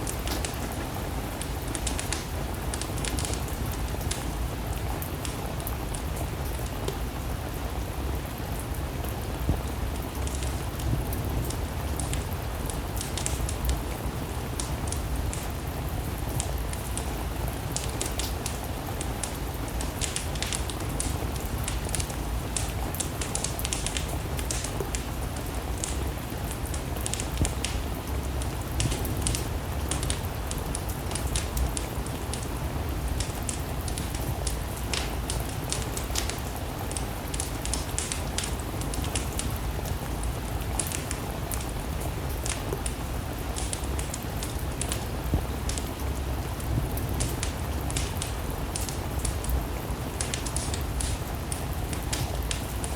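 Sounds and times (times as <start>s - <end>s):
steady rain: 0.0s - 52.9s
wood fire crackling: 0.0s - 52.9s.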